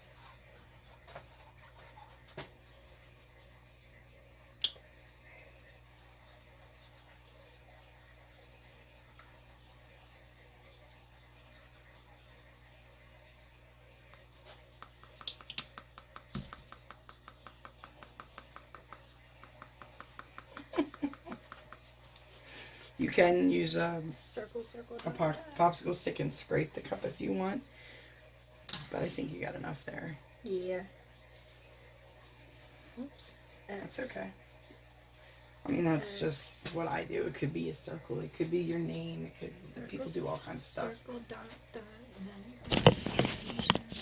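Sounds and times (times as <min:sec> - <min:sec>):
rapid steady clicking: 0:14.8 - 0:21.9.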